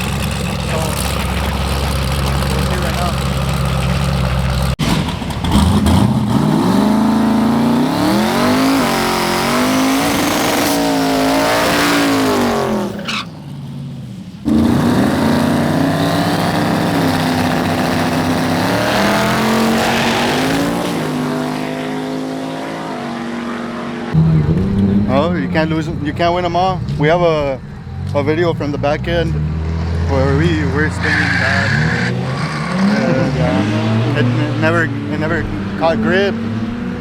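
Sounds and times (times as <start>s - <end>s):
car engine at full throttle: 0.0s - 37.0s.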